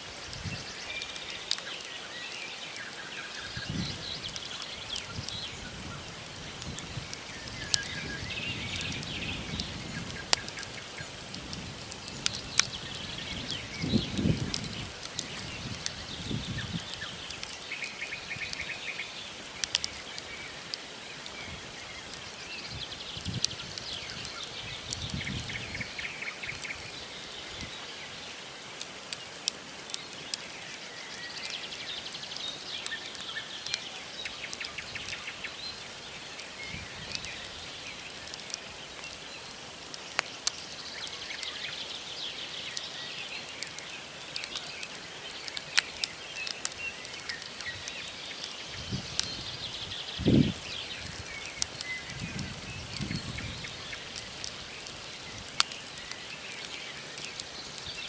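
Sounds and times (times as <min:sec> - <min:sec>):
wood fire crackling: 0:00.0 - 0:58.0
small birds trilling: 0:00.4 - 0:58.0
logs popping and snapping: 0:06.2 - 0:17.8, 0:19.4 - 0:21.4, 0:37.0 - 0:40.7, 0:42.8 - 0:58.0.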